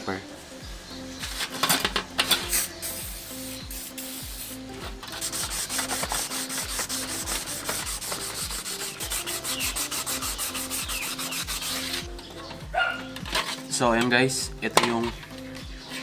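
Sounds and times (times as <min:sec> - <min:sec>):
background music with beat: 0:00.0 - 0:16.0
sandpaper rubbing on metal: 0:01.2 - 0:12.1.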